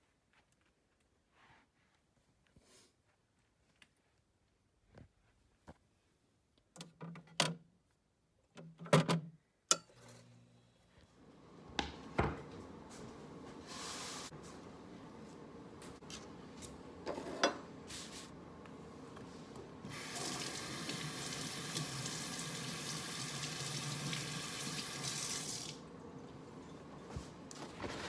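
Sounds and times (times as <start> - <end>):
water tap running: 13.6 - 14.3, 19.7 - 26.4.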